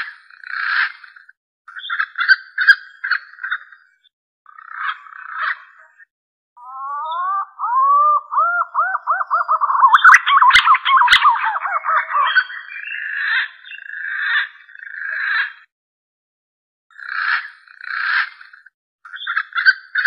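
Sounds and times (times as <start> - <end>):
pigeon whistled call: 6.6 - 13.1.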